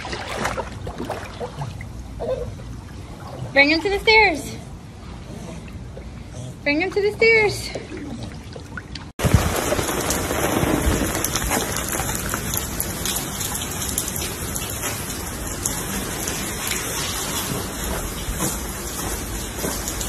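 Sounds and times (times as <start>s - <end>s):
rain falling on paving: 9.2s - 20.0s.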